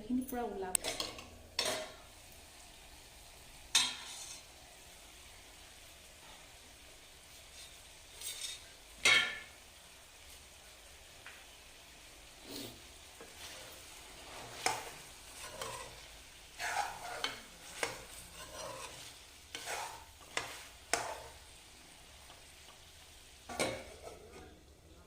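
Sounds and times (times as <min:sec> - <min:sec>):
spatula scraping a pan: 0:00.8 - 0:02.1, 0:03.7 - 0:04.6, 0:07.3 - 0:09.5, 0:12.4 - 0:24.6
meat frying in oil: 0:00.8 - 0:25.0.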